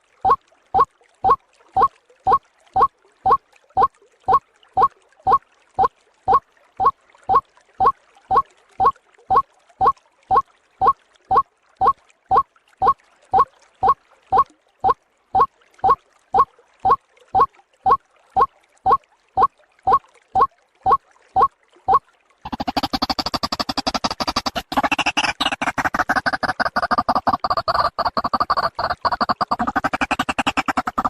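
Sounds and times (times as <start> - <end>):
rapid chattering bird chorus: 22.5 - 31.0.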